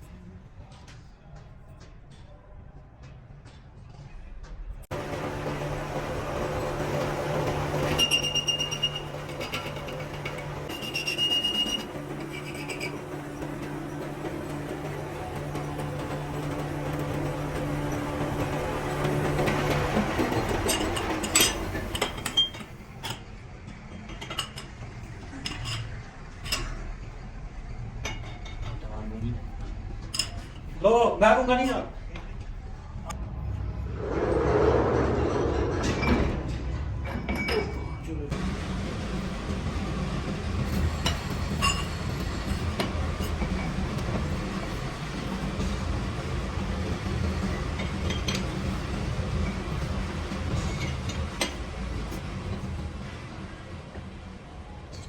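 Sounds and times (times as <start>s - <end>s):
machinery humming: 4.9s - 24.1s, 28.8s - 55.0s
metal tools clinking and knocking: 20.5s - 23.2s, 24.0s - 24.8s, 25.4s - 26.7s.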